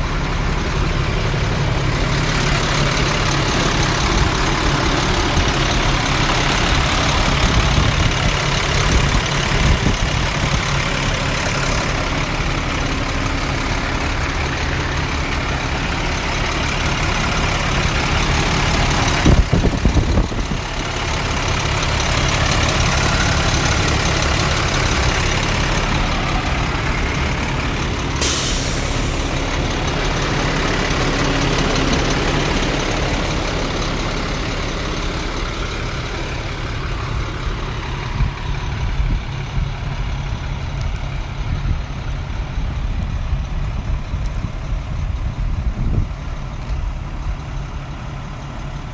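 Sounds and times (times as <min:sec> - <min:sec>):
diesel truck engine idling: 0:00.0 - 0:48.9
short burst of hiss: 0:28.2 - 0:29.4.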